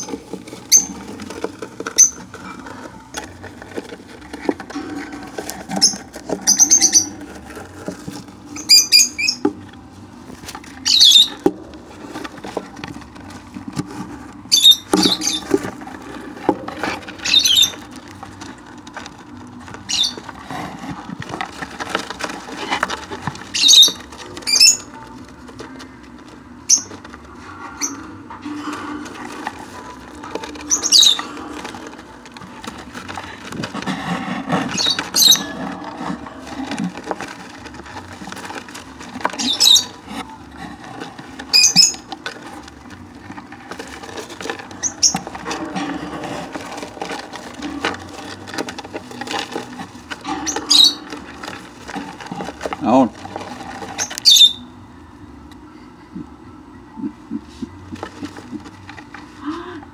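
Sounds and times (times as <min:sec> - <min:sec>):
lovebirds shrill calls: 0:05.8 - 0:07.2, 0:08.6 - 0:09.4, 0:10.8 - 0:11.4, 0:14.5 - 0:15.6, 0:17.2 - 0:17.9, 0:19.8 - 0:20.2, 0:23.5 - 0:24.9, 0:26.7 - 0:26.9, 0:30.6 - 0:31.3, 0:34.7 - 0:35.6, 0:39.3 - 0:40.0, 0:41.5 - 0:42.1, 0:44.8 - 0:45.2, 0:50.3 - 0:51.2, 0:54.0 - 0:54.7.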